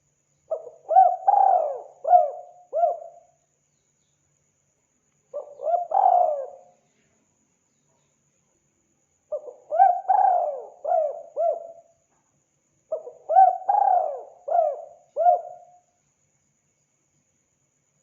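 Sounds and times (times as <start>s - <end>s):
dove cooing: 0.5s - 3.2s, 5.4s - 6.7s, 9.3s - 11.9s, 12.9s - 15.7s.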